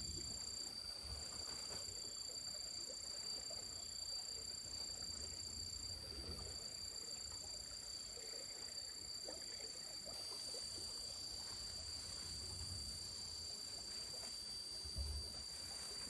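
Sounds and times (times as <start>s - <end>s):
insects droning: 0.0s - 16.0s
faint frog-like calls: 2.1s - 11.5s.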